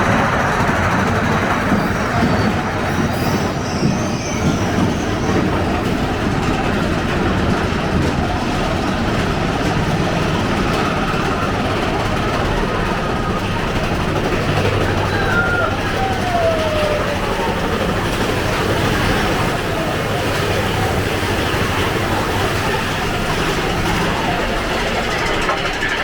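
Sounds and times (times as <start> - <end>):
roller coaster wheels rumbling on rail: 0.0 - 26.0.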